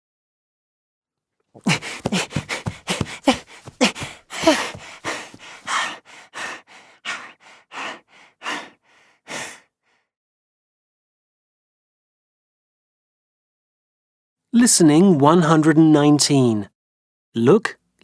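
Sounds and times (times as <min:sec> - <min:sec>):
person gasping: 0:01.6 - 0:09.7
person panting: 0:01.6 - 0:09.7.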